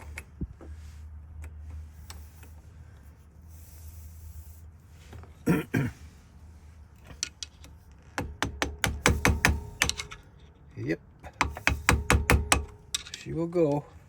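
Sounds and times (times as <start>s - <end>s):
cough-like noise: 5.4s - 6.0s.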